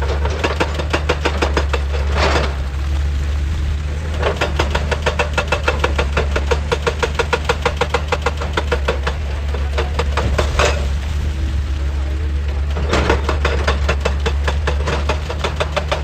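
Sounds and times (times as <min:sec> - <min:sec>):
excavator engine running: 0:00.0 - 0:16.0
rapid even hammering: 0:13.1 - 0:16.0.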